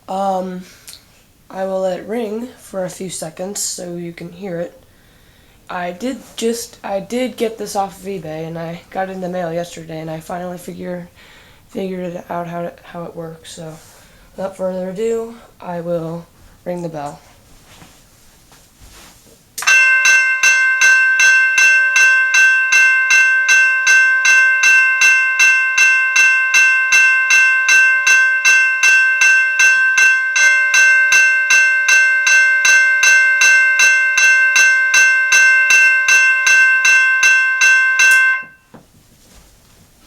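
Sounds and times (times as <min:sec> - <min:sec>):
railroad crossing bell ringing: 0:19.6 - 0:38.7.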